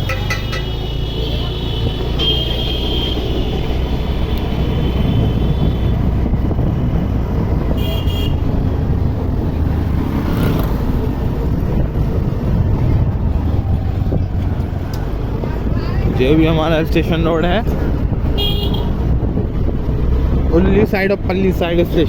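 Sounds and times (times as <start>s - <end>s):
vehicle horn: 0.0s - 6.2s, 7.6s - 8.6s, 18.3s - 19.1s
road and wind rumble: 0.0s - 22.0s.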